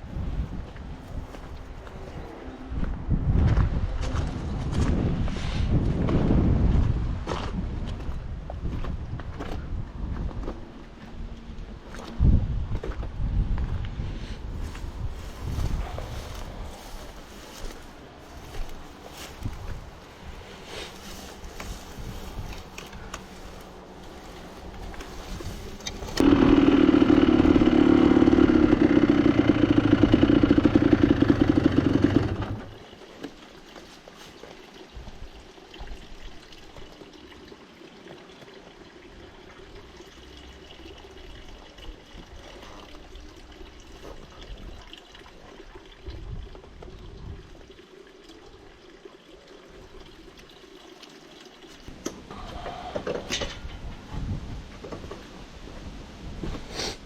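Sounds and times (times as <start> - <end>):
fountain water pouring and splashing: 32.8 - 51.9.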